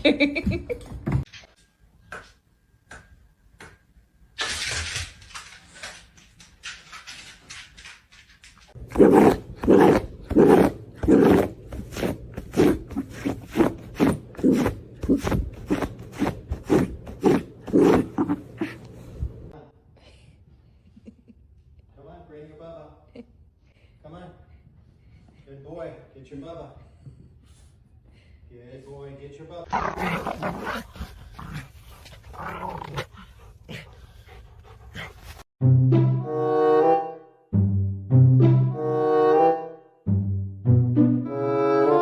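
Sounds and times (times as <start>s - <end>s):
dog barking growly barks: 8.9s - 12.8s.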